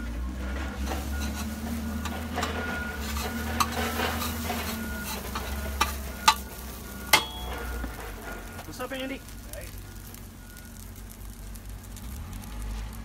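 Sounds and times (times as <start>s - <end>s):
hash browns sizzling in a pan: 0.3s - 13.0s
metal spatula scraping a pan: 0.5s - 8.6s
utensil clacking on a pan: 2.0s - 6.4s, 7.1s - 7.6s.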